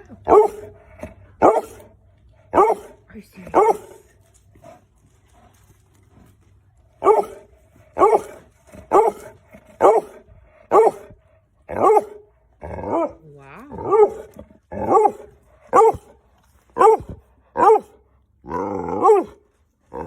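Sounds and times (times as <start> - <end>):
dog barking: 0.3 - 0.7, 1.4 - 1.8, 2.5 - 4.0, 7.0 - 7.4, 8.0 - 12.3, 13.8 - 16.2, 16.8 - 18.0, 19.0 - 19.4.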